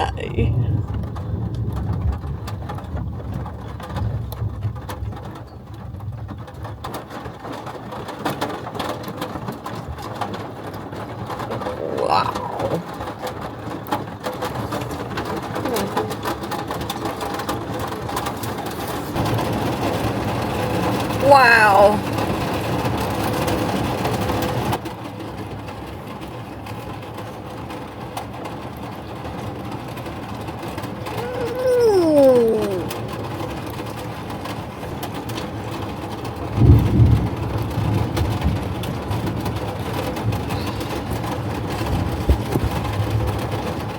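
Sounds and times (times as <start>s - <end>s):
thunder rumble: 0.0s - 8.0s, 10.9s - 21.2s, 32.9s - 43.9s
rain pattering on a roof: 0.0s - 43.9s.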